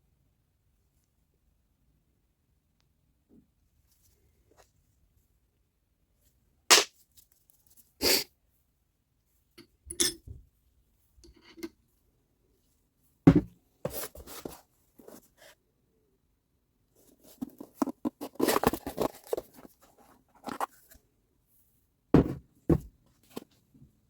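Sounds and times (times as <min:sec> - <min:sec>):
parts knocking on a workbench: 0:13.3 - 0:13.6, 0:22.2 - 0:22.9.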